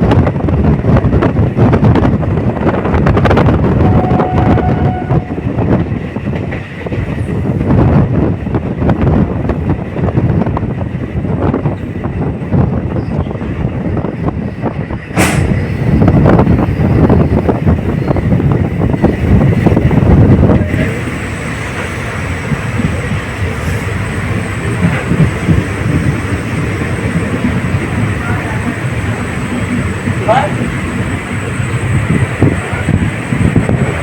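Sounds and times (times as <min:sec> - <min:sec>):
train wheels rumbling on rails: 0:00.0 - 0:34.0
wind rush: 0:00.0 - 0:34.0
sharp crack: 0:15.2 - 0:15.6.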